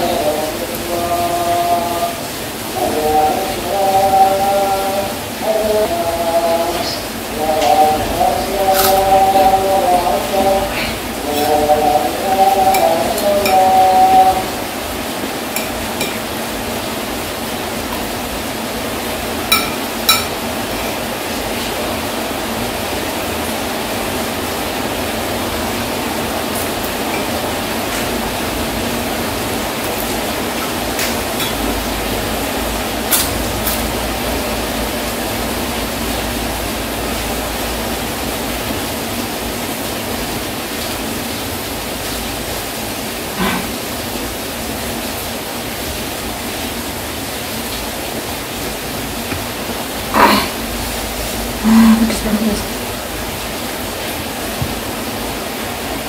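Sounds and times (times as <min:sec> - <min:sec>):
heavy rain: 0:00.0 - 0:56.0
spoon clinking against plate: 0:12.2 - 0:14.2, 0:15.6 - 0:16.3, 0:19.5 - 0:21.0.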